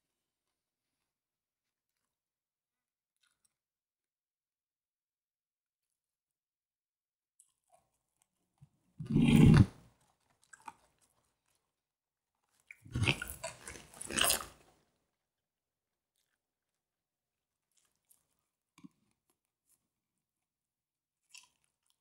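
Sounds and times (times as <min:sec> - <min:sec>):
crunchy chewing of fried chicken: 0:09.0 - 0:11.8, 0:12.4 - 0:15.0, 0:17.6 - 0:19.9, 0:21.2 - 0:22.0.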